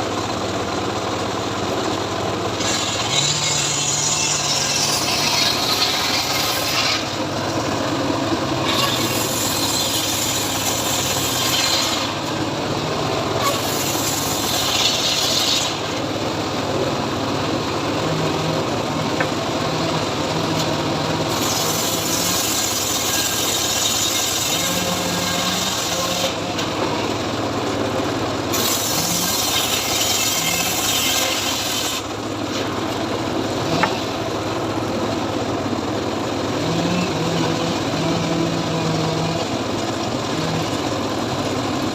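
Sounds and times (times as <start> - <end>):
sawmill engine drone: 0.0 - 41.9
saw blade hissing through wood: 2.6 - 7.3, 8.6 - 12.4, 13.4 - 16.0, 21.3 - 26.5, 28.5 - 32.7.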